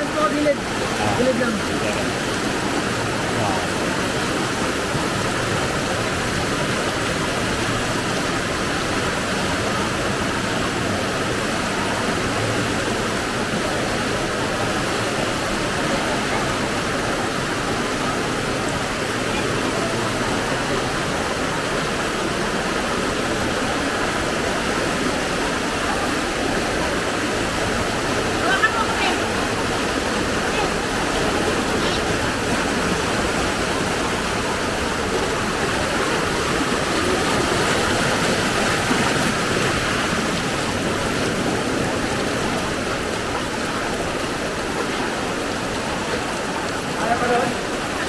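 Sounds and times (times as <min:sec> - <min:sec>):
floodwater rushing along street: 0:00.0 - 0:48.0.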